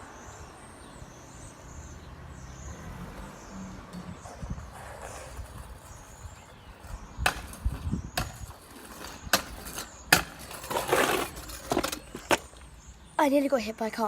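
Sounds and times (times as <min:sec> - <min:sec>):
birds chirping faintly: 0:00.0 - 0:14.0.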